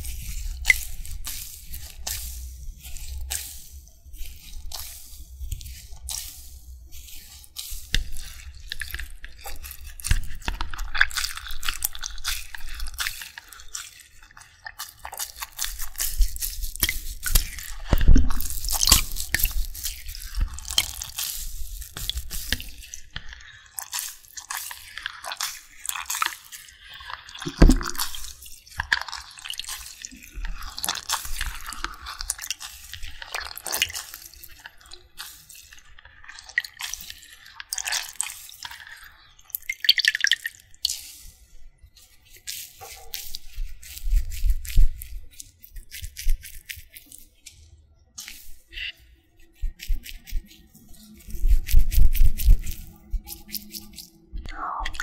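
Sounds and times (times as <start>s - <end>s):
water dripping and splashing: 0.0s - 41.3s
crackling and squishing: 0.0s - 55.0s.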